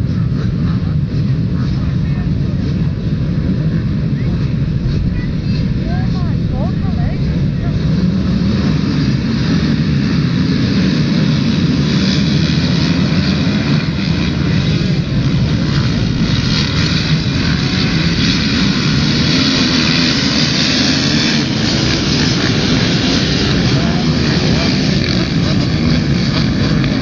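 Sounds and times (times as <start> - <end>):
motocross bike engine droning: 0.0 - 27.0.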